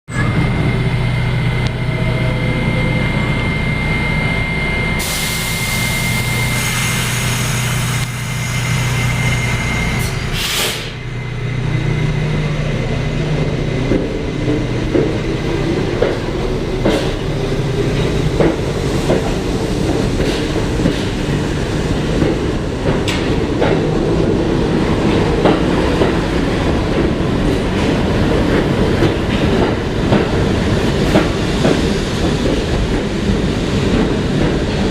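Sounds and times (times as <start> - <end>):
train low hum: 0.1 - 34.9
air hisses: 10.0 - 11.0.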